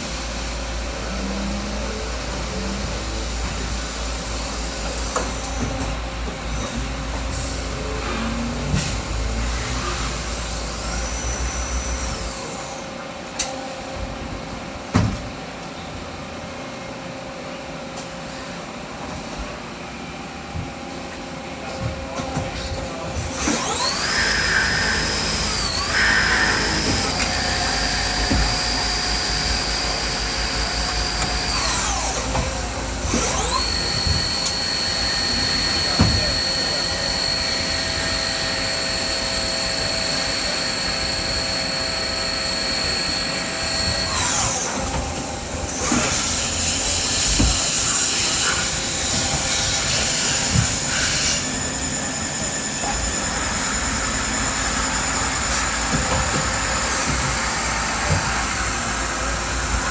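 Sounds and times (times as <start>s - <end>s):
machine shop rumble: 0.0s - 59.9s
lathe spindle whine: 23.4s - 59.9s.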